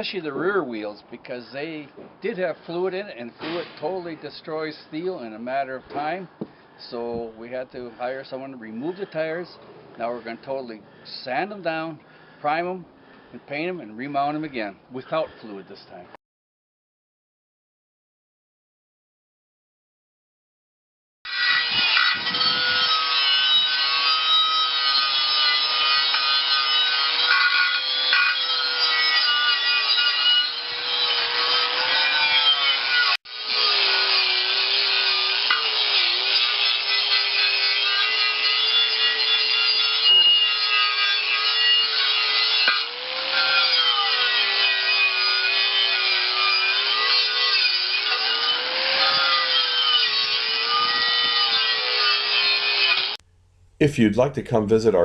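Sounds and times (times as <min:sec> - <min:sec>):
wire brush rasping on steel: 0:21.4 - 0:53.2.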